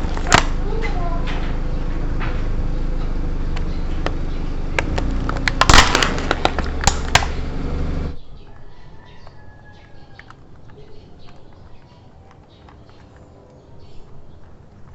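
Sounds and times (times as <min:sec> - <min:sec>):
plastic lighters cracking and popping: 0:00.0 - 0:00.6, 0:03.6 - 0:07.5
car engine rumble: 0:00.0 - 0:08.4.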